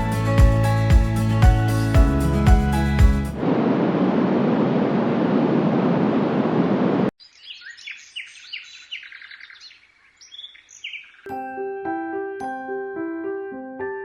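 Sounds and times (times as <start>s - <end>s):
steady rushing noise: 3.3s - 7.1s
recorded birdsong chirps: 7.2s - 11.6s
chiming lullaby melody: 11.3s - 13.7s.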